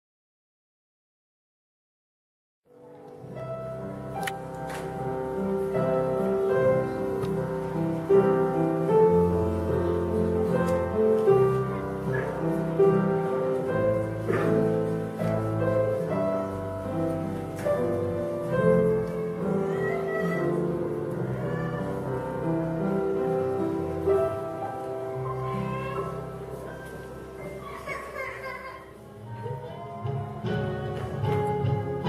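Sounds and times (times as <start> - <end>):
piano-led instrumental music: 2.7 - 32.0.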